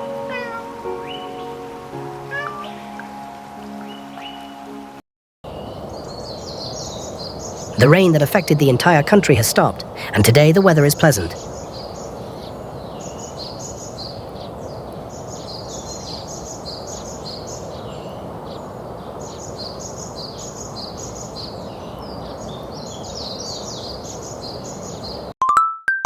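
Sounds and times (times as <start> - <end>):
outdoor background noise: 5.5 - 25.3
small birds chirping: 5.5 - 25.3.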